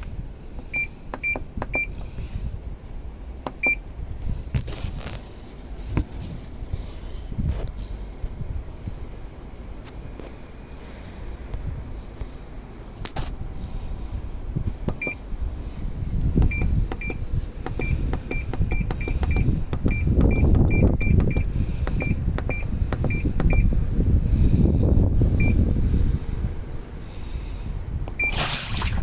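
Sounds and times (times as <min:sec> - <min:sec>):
washing machine button beeps: 0:00.7 - 0:01.9, 0:03.6 - 0:03.8, 0:15.0 - 0:15.2, 0:16.5 - 0:17.2, 0:17.8 - 0:21.4, 0:22.0 - 0:23.7, 0:28.2 - 0:28.6
low rumbling: 0:13.4 - 0:29.0.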